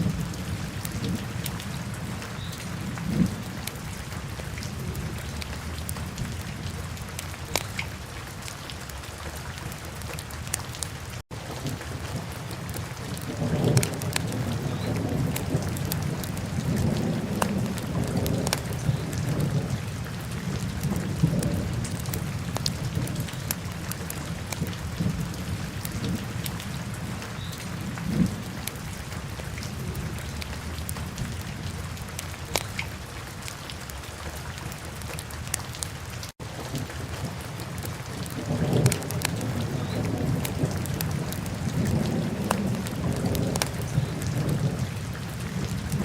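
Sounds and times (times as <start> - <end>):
fire crackling and popping: 7.2 - 7.9, 14.9 - 18.8, 32.2 - 32.9, 37.8 - 44.0.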